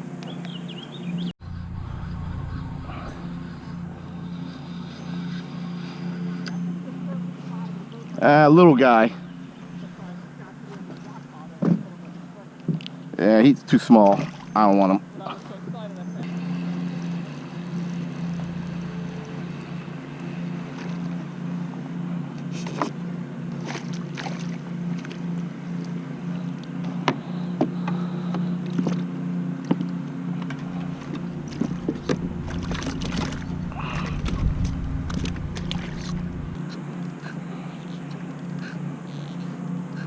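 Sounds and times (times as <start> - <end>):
steady low hum: 0.0 - 13.2, 14.2 - 40.0
wind rumble on microphone: 1.4 - 4.9, 30.6 - 36.7
light knocks and splashes: 14.0 - 14.6, 22.4 - 25.9, 28.7 - 36.2.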